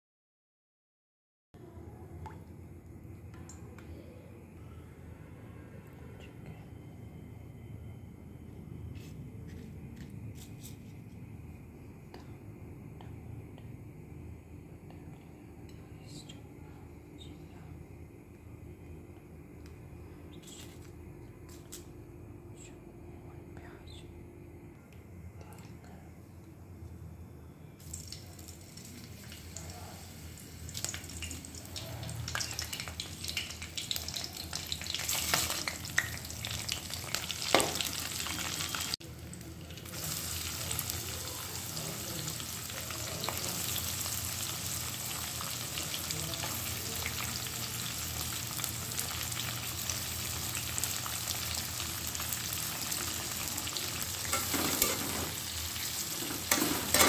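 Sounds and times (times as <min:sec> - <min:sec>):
onions sizzling in oil: 0:27.8 - 0:57.0
spices crackling in hot oil: 0:27.8 - 0:57.0
spatula scraping pan: 0:54.3 - 0:55.4, 0:56.2 - 0:57.0.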